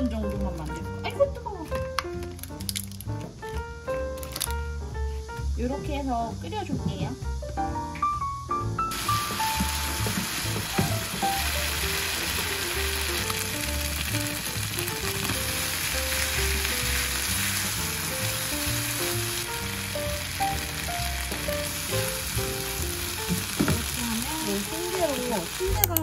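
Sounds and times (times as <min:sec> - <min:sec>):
light melodic background music: 0:00.0 - 0:26.0
food sizzling in a pan: 0:08.9 - 0:26.0.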